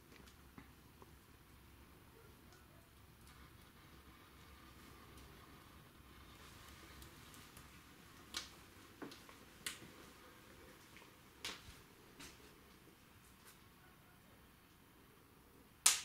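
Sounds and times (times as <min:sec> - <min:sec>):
wood fire pops and cracks: 0:00.0 - 0:01.4, 0:03.0 - 0:12.8.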